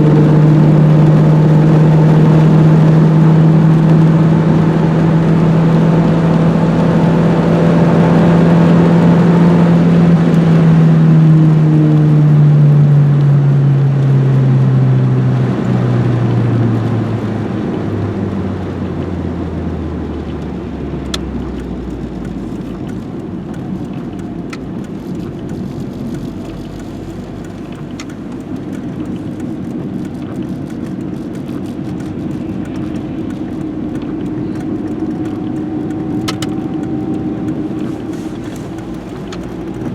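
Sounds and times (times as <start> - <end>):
car engine decelerating: 0.0 - 39.9
faint clicks: 20.2 - 39.9.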